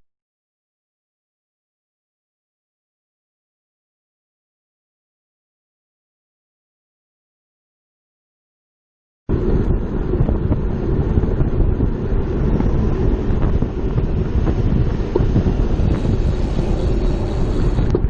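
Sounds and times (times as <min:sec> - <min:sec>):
wind buffeting microphone: 0:09.3 - 0:18.0.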